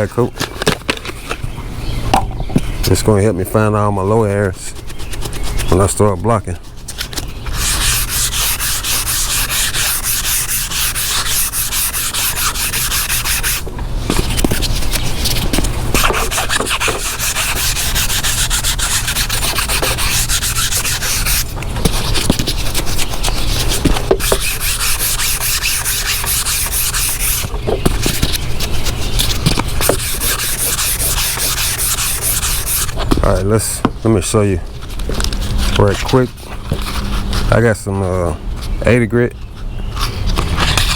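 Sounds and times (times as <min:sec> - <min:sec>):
pad rubbing over bumper: 0:04.1 - 0:34.0.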